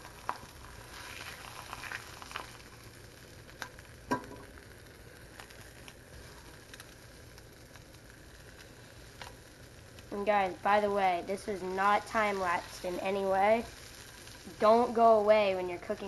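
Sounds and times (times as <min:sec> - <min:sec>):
fish sizzling in a skillet: 0:00.0 - 0:16.0
fat popping: 0:03.6 - 0:04.7.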